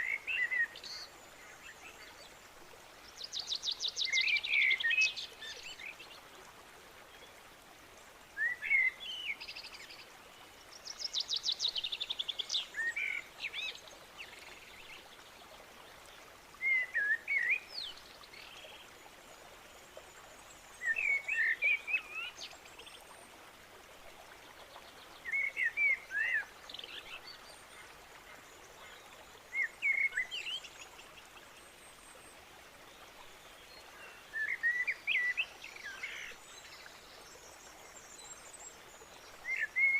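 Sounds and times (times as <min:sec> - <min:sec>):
faint steady background hiss: 0:00.0 - 0:39.9
songbird singing warbled phrases: 0:08.4 - 0:09.6, 0:16.6 - 0:18.8, 0:20.8 - 0:22.6, 0:25.2 - 0:27.4, 0:34.0 - 0:37.1.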